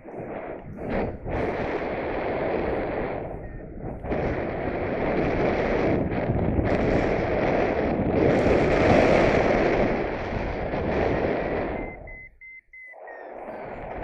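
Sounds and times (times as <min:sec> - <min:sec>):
wind buffeting microphone: 0:00.0 - 0:14.0
faint high steady tone: 0:11.6 - 0:13.8.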